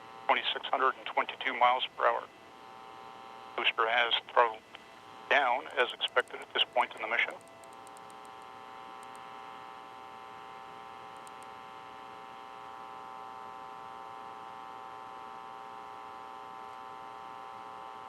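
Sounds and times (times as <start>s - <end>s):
steady electronic hum: 0.0s - 18.0s
faint clicks: 5.6s - 9.3s, 11.2s - 11.5s.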